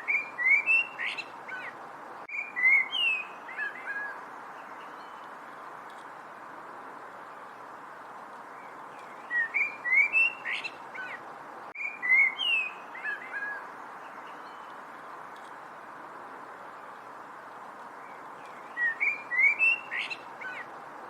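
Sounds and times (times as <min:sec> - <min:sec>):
songbird whistling: 0:00.0 - 0:01.7, 0:02.3 - 0:04.2, 0:09.2 - 0:11.2, 0:11.8 - 0:13.6, 0:18.4 - 0:20.6
steady background hiss: 0:00.0 - 0:21.0.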